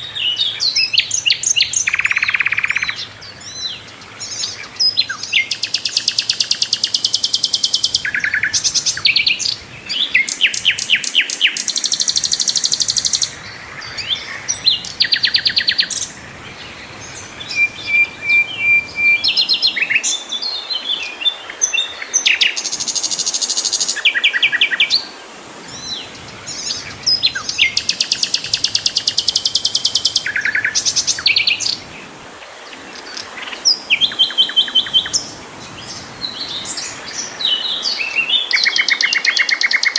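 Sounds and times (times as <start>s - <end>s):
flycatcher singing rapid trills: 4.2s - 20.5s, 26.6s - 31.8s.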